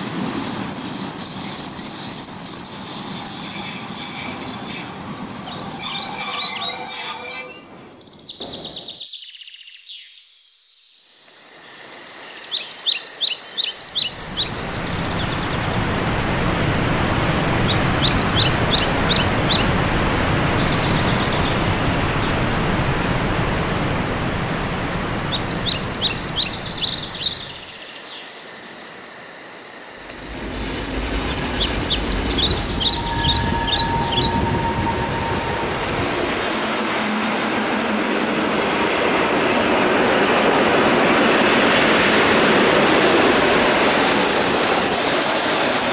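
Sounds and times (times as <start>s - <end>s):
high wheel squeal: 0.0s - 8.0s, 14.1s - 27.6s, 30.0s - 37.8s, 42.7s - 45.9s
train wheels rumbling on rail: 14.1s - 27.6s, 30.0s - 45.9s
bird trilling: 30.0s - 37.0s.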